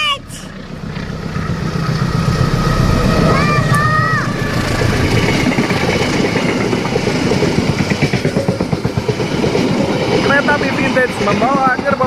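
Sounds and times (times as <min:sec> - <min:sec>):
locomotive engine rumbling: 0:00.0 - 0:12.0
wheels clattering over rail joints: 0:00.5 - 0:12.0.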